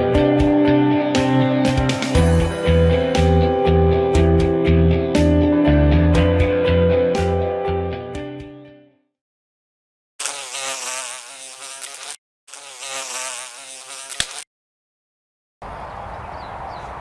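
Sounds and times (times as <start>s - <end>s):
insect buzzing: 10.2s - 14.5s
sharp click: 14.1s - 14.4s.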